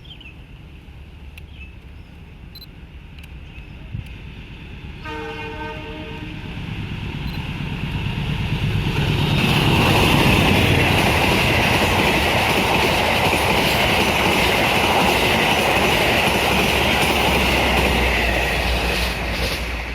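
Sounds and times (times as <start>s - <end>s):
train wheel and rail rumble: 0.0s - 19.9s
train horn: 5.0s - 6.5s
high ringing tone: 7.2s - 7.5s.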